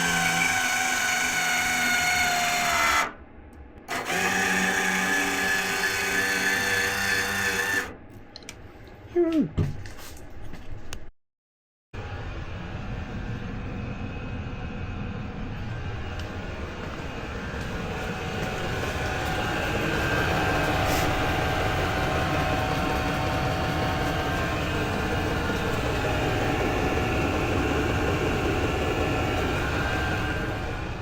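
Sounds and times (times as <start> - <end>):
engine running steadily: 12.4 - 31.0.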